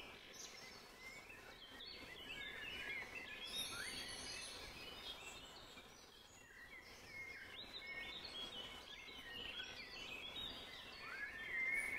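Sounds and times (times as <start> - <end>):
faint outdoor background noise: 0.0 - 11.9
small birds chirping and singing: 0.0 - 11.9.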